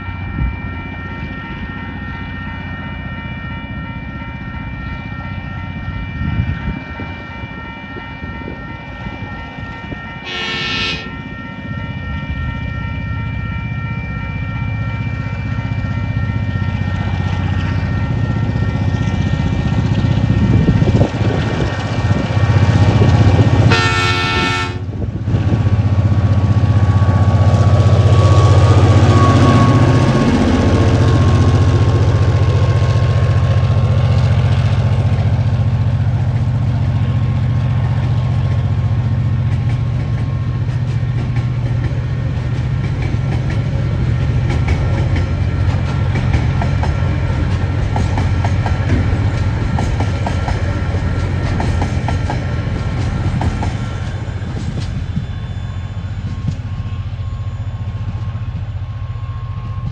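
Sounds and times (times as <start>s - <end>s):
locomotive horn blast: 10.2s - 11.2s, 23.6s - 25.0s
diesel locomotive engine running: 10.2s - 11.6s, 13.7s - 59.9s
wheels clickety-clack: 39.4s - 55.3s.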